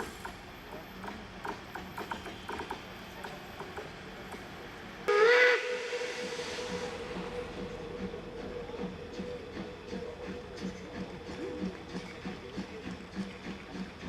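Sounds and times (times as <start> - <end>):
locomotive whistle: 5.1 - 12.4.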